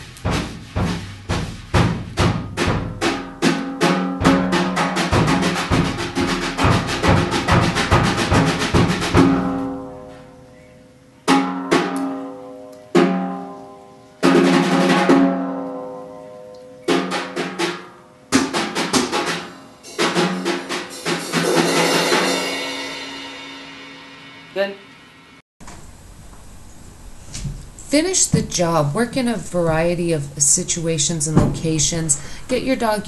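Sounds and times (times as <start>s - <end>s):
drum kit rolls and hits: 0.0s - 10.3s, 11.3s - 12.0s, 13.0s - 13.5s, 14.2s - 15.6s, 16.9s - 25.4s, 31.0s - 32.0s.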